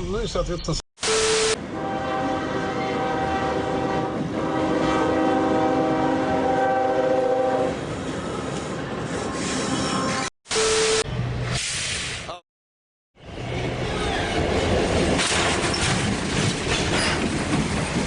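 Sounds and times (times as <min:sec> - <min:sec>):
train horn chord: 0:01.1 - 0:07.8
train rumble: 0:13.2 - 0:18.0.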